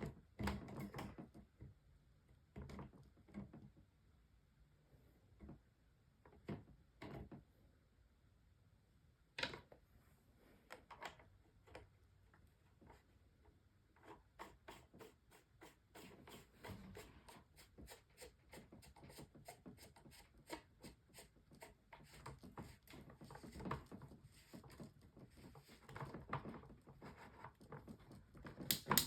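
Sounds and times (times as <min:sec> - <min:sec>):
plastic fan parts clicking: 0:28.7 - 0:29.0.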